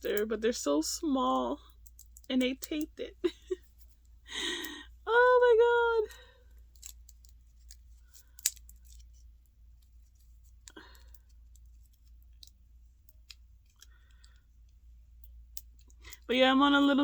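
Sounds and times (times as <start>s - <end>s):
plastic parts clicking: 6.7s - 9.2s.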